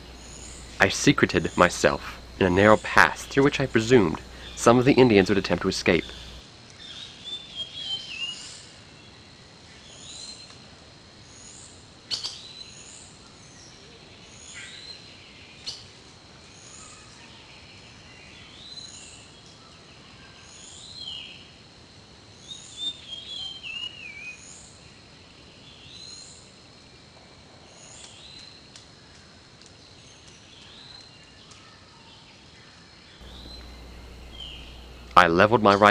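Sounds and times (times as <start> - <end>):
birds chirping: 0.0 - 6.4, 33.2 - 35.9.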